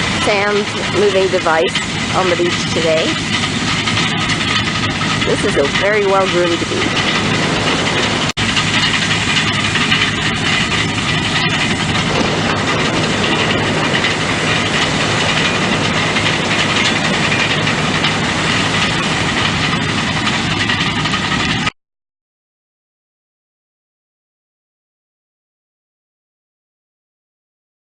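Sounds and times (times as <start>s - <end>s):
earth mover engine running: 0.0s - 21.8s.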